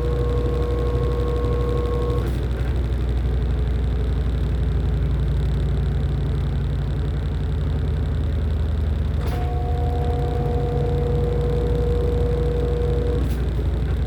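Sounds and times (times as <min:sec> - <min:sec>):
motor whine: 0:00.0 - 0:02.4, 0:09.2 - 0:13.7
washing machine humming: 0:09.4 - 0:13.4.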